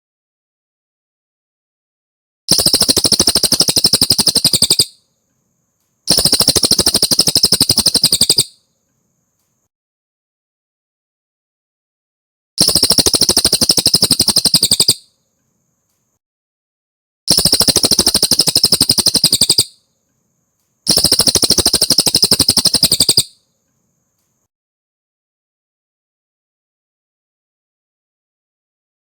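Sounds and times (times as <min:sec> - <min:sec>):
songbird trilling: 0:02.5 - 0:05.0, 0:06.1 - 0:08.6, 0:12.6 - 0:15.1, 0:17.3 - 0:19.8, 0:20.9 - 0:23.4.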